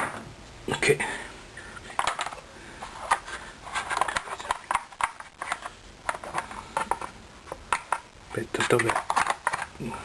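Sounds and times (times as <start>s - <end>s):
plastic parts clicking and knocking: 1.9s - 2.4s, 3.0s - 9.9s.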